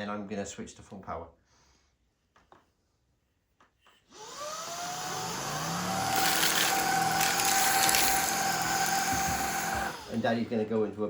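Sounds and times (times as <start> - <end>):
stick vacuum motor whine: 4.1 - 10.9.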